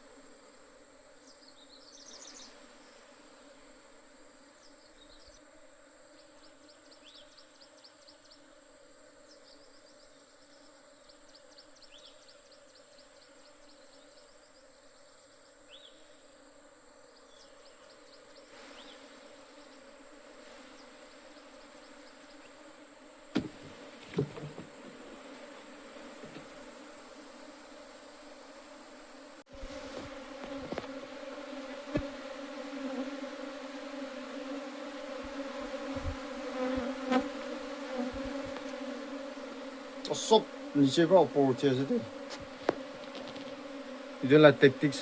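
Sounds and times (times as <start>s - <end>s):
honey bees buzzing: 0.0s - 14.9s, 15.5s - 45.0s
sharp knocks: 23.3s - 24.8s.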